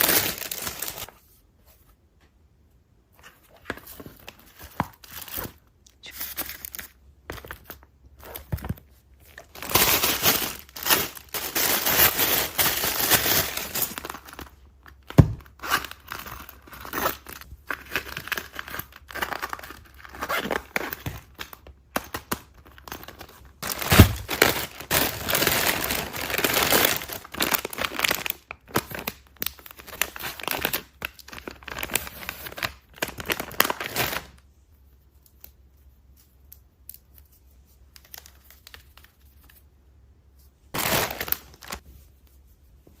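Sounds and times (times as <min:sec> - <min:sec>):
packaging crinkling and tearing: 0:00.0 - 0:01.2, 0:09.2 - 0:34.4, 0:40.8 - 0:41.8.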